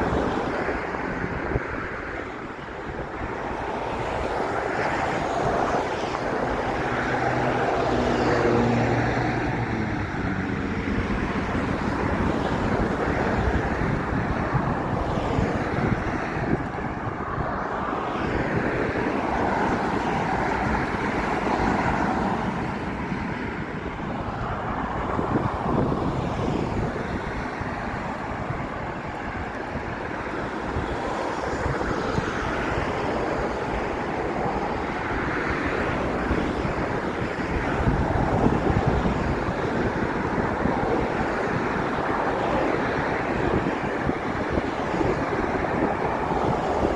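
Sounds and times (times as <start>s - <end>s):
road traffic: 0.0s - 46.9s
wind on microphone: 0.0s - 46.9s.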